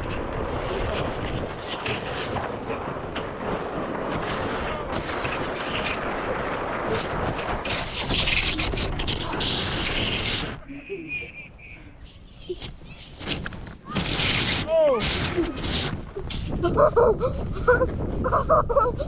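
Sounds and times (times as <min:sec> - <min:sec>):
sled scraping on snow: 0:00.0 - 0:18.8
wind on microphone: 0:00.0 - 0:19.0.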